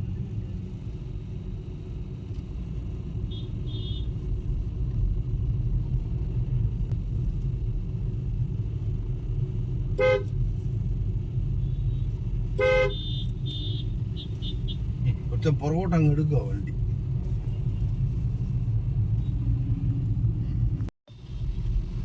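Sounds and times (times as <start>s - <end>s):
car rumbling on road: 0.0s - 22.0s
car horn honks: 10.0s - 10.3s, 12.6s - 14.8s.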